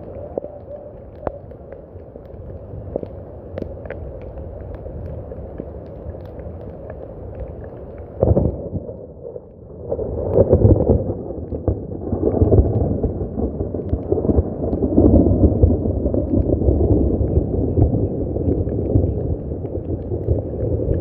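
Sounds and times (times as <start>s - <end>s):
steady rain: 0.0s - 21.0s
thunder rumbling: 8.2s - 21.0s.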